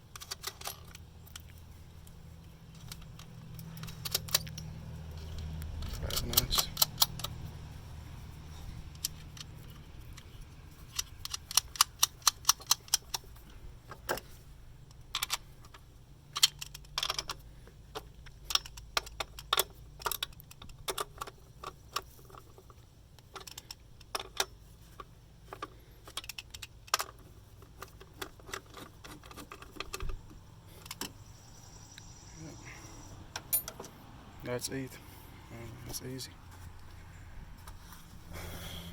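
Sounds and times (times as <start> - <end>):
ratchet wrench clicking: 2.8 - 7.4, 8.9 - 13.3.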